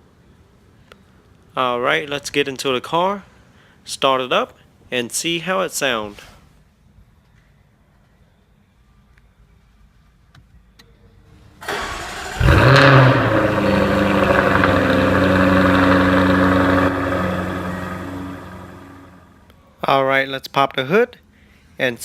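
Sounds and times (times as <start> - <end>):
starter motor cranking: 11.6 - 18.8
car engine revving and idling: 11.7 - 19.3.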